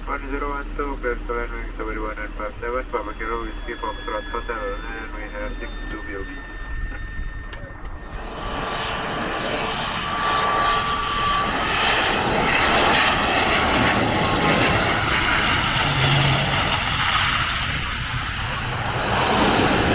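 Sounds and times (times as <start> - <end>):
turboprop engine running: 0.0 - 19.9
rush of air: 15.8 - 19.9.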